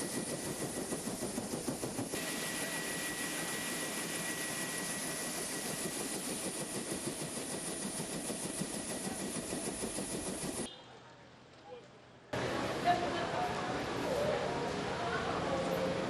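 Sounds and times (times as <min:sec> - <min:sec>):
aircraft engine noise on board: 0:00.0 - 0:10.7.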